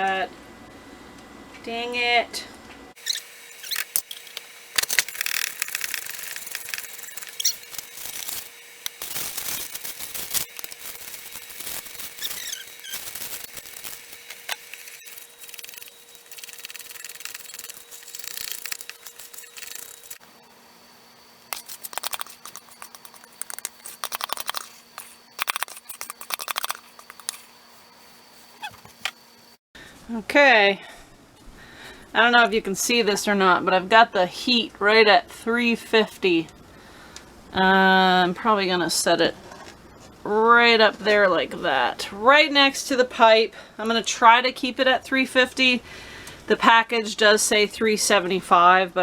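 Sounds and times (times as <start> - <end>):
utensil scraping a mixing bowl: 5.1 - 20.2, 21.6 - 29.0.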